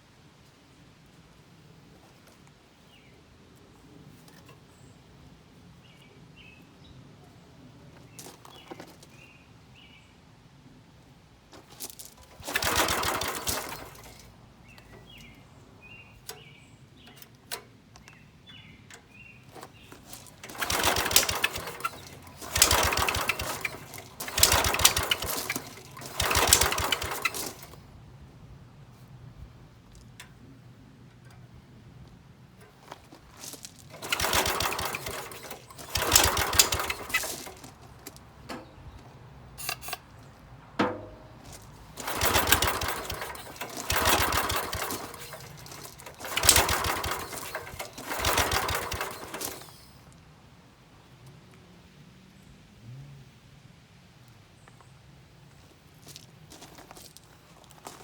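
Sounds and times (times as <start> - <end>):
small gasoline engine cranking and sputtering: 11.6 - 17.6, 18.6 - 27.9, 32.6 - 38.9, 39.6 - 40.1, 40.8 - 50.2.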